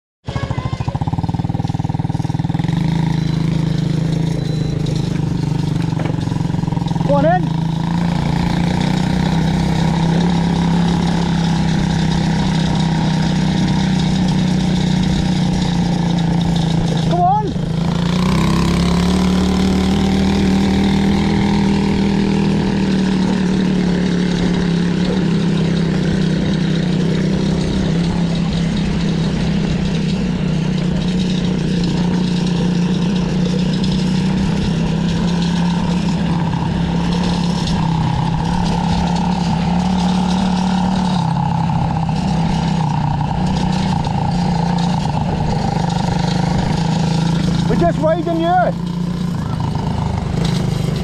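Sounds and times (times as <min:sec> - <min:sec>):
quad bike engine running: 0:00.2 - 0:51.0.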